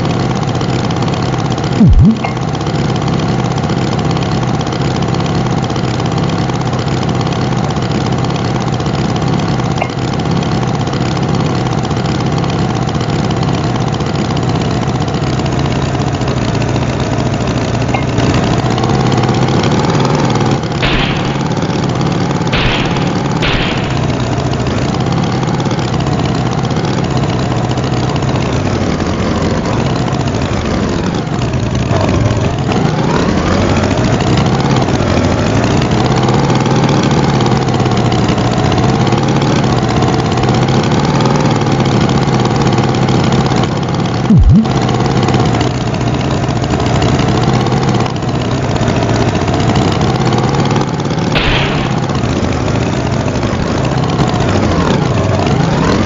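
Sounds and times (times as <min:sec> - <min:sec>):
cartoon tractor engine: 0:00.0 - 0:56.0
loud low swoop: 0:01.8 - 0:02.3, 0:44.3 - 0:44.7.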